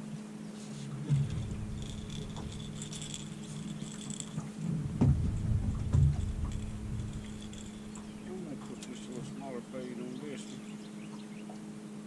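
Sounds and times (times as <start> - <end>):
boat motor humming: 0.2 - 12.0
wind buffeting microphone: 1.0 - 8.8.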